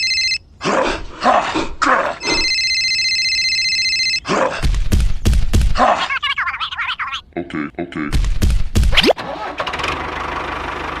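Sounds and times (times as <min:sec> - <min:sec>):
electronic ringing tone: 0:00.0 - 0:00.4, 0:02.2 - 0:04.2.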